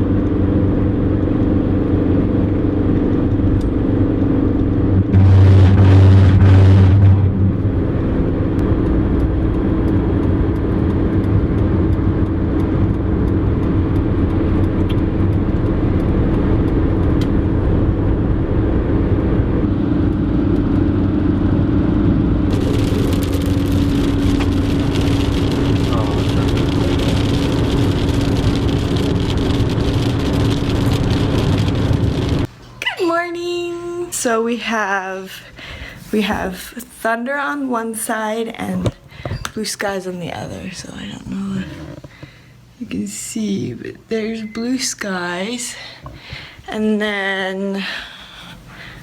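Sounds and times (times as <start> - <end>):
car engine hum: 0.0 - 32.5
road noise: 0.0 - 32.5
rushing air: 4.8 - 10.8, 17.4 - 32.5.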